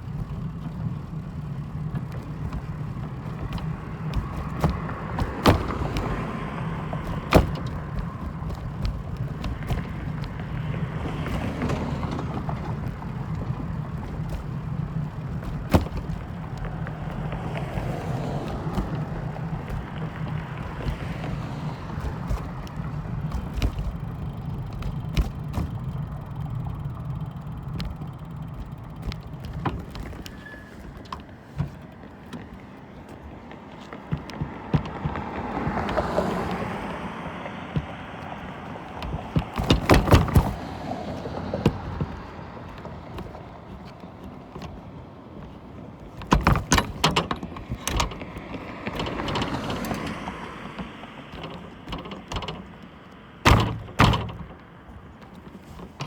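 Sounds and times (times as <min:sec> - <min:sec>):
low mechanical hum: 0:00.0 - 0:33.6
sharp clicks and knocks: 0:00.0 - 0:56.0.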